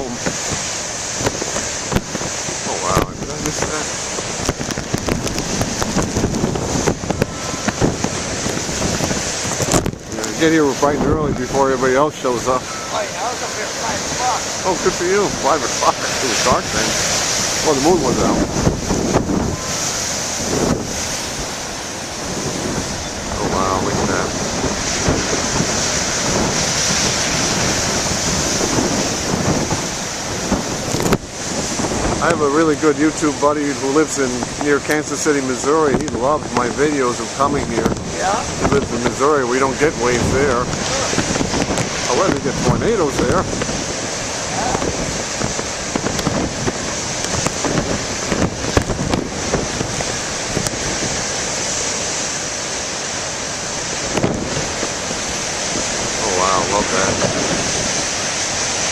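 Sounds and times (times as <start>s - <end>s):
waves breaking on shore: 0.0s - 58.9s
wind blowing across microphone: 0.0s - 58.9s.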